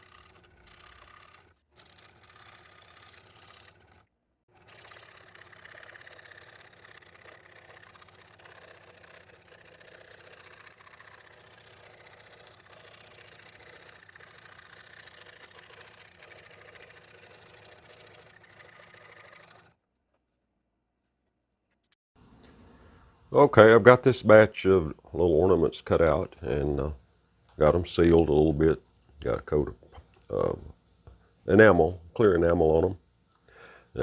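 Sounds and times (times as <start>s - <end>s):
scroll saw cutting plywood: 0.0s - 19.8s.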